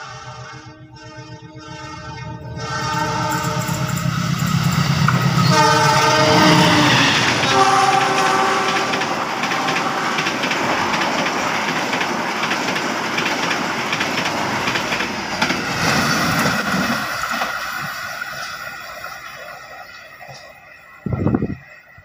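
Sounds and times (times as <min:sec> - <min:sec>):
locomotive air horn: 0:00.0 - 0:11.0
train wheels rushing on rail: 0:00.0 - 0:22.0.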